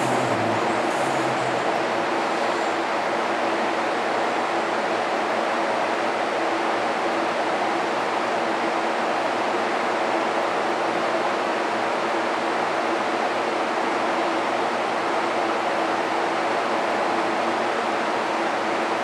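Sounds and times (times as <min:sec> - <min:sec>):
locomotive engine roaring: 0:00.0 - 0:02.8
faint hum tones: 0:00.0 - 0:03.4.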